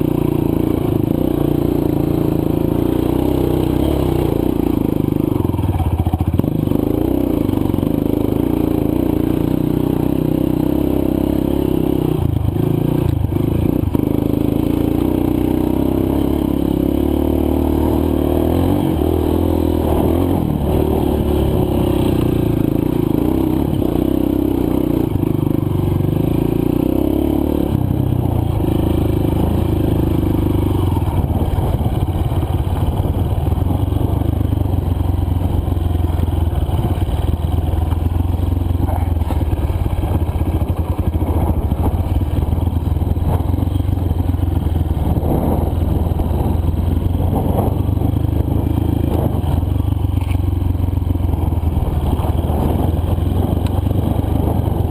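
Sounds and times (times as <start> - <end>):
dirt bike engine revving: 0.1 - 34.0.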